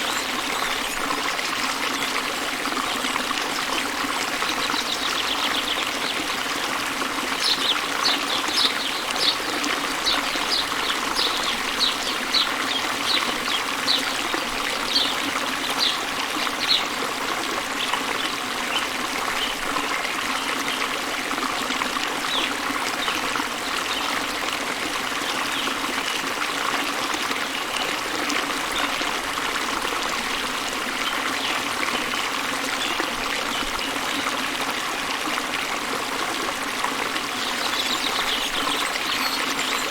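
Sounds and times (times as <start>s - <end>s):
waterfall rushing: 3.6s - 18.3s.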